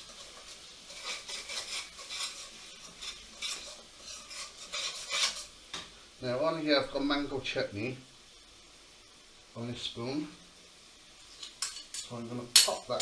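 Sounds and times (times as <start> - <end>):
utensil scraping frying pan: 0.0 - 6.1, 11.2 - 13.0
light sizzle: 0.0 - 13.0.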